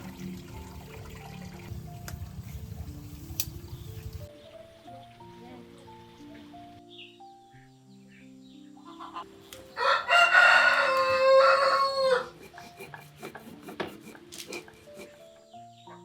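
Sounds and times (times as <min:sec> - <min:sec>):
rooster crowing: 0:09.8 - 0:12.4.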